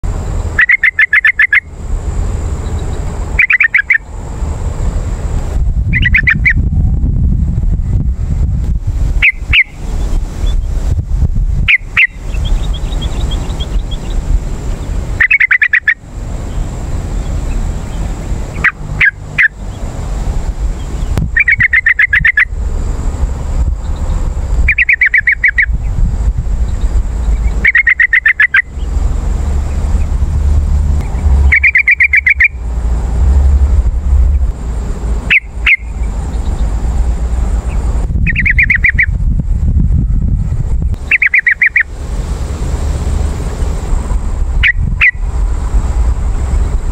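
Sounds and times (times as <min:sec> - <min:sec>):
constant low rumble: 0:00.0 - 0:46.9
bird bubbly chattering: 0:00.6 - 0:01.7, 0:03.4 - 0:04.1, 0:05.9 - 0:06.6, 0:09.2 - 0:10.7, 0:11.7 - 0:16.6, 0:20.8 - 0:22.5, 0:24.7 - 0:25.7, 0:26.8 - 0:28.9, 0:31.5 - 0:32.6, 0:38.3 - 0:39.1, 0:41.0 - 0:41.9.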